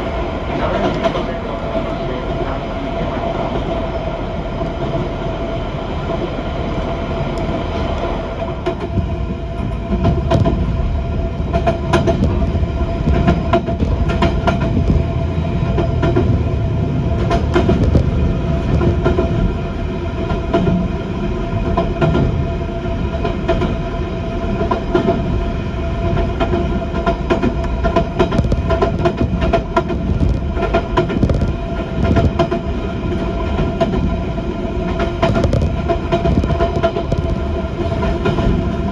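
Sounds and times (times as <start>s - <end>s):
train interior drone: 0.0s - 38.9s
wheels clacking over rail joints: 7.3s - 23.9s, 26.0s - 38.9s.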